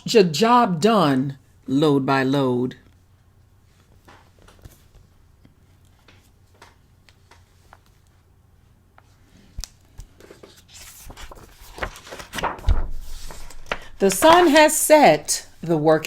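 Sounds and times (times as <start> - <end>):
book page turning: 9.0 - 14.9.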